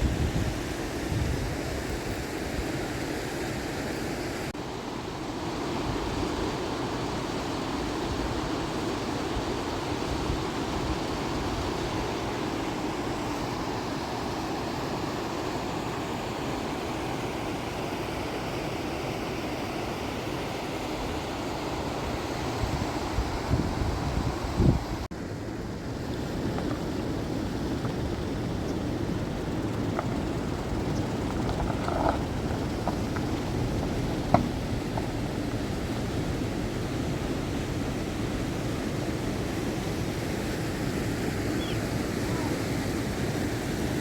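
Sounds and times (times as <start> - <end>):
wind buffeting microphone: 22.6 - 25.1, 26.0 - 44.0.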